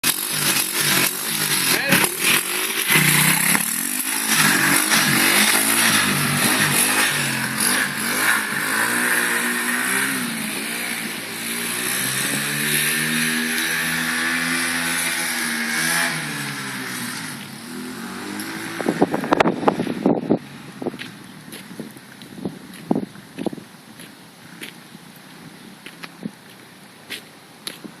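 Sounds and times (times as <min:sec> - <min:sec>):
motorbike engine revving: 0:00.0 - 0:21.0.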